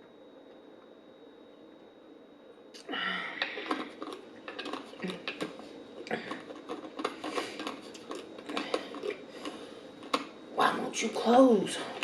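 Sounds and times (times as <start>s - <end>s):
food packaging crinkling: 3.4s - 10.4s.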